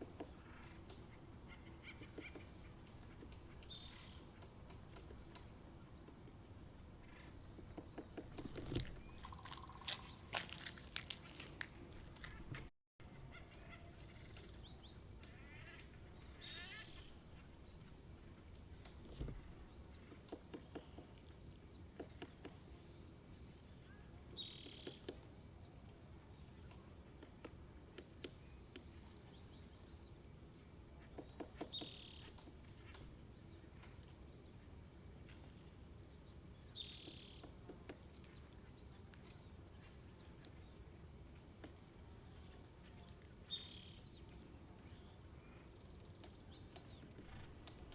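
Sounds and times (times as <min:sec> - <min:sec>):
woodpecker chattering: 0:00.0 - 0:06.2, 0:07.0 - 0:11.6, 0:19.9 - 0:21.3, 0:21.9 - 0:22.6, 0:24.5 - 0:25.3
bird calls and chirps: 0:00.0 - 0:30.3, 0:31.0 - 0:47.9.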